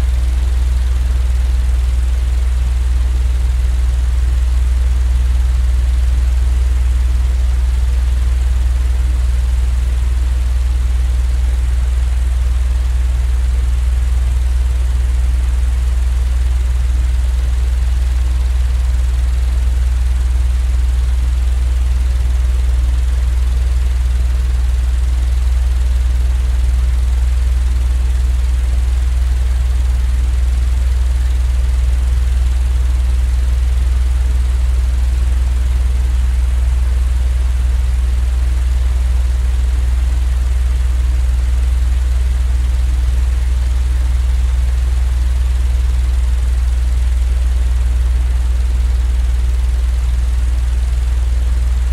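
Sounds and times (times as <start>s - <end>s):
low rumbling white noise: 0.0s - 12.4s, 27.5s - 33.3s, 45.4s - 51.9s.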